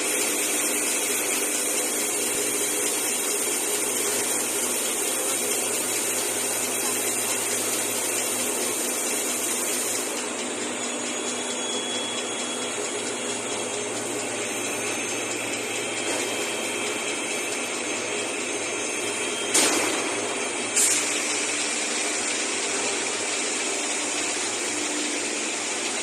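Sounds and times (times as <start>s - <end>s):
brief sharp sound: 19.5s - 21.2s.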